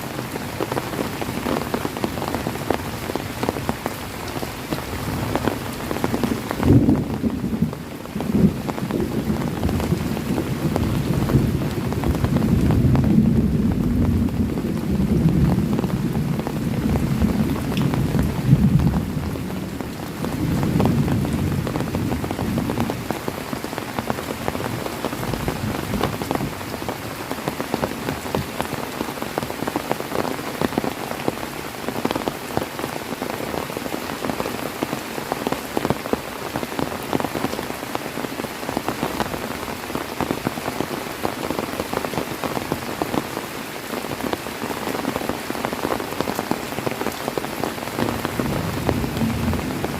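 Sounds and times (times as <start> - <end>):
heavy rain pattering: 0.0 - 49.9
low rumble of thunder: 6.2 - 23.1, 48.0 - 49.9.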